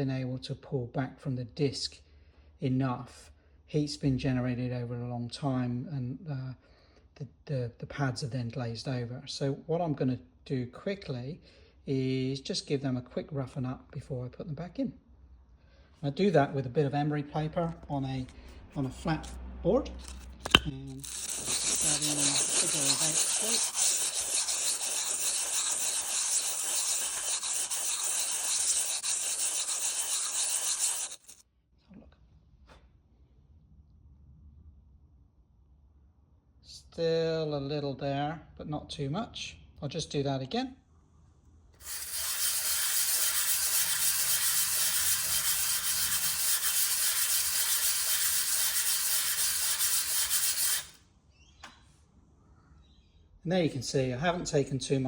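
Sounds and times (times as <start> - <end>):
brake pad sanding on emery paper: 20.0 - 31.4, 41.8 - 51.0.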